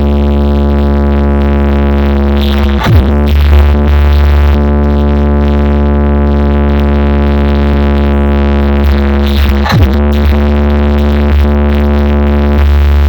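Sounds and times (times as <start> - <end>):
buzzy low synth drone: 0.0 - 13.0.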